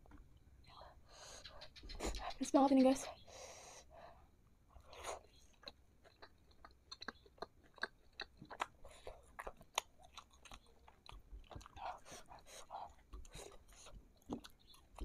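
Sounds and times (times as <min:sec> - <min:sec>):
chewing mouth clicks and smacks: 0:05.4 - 0:15.0.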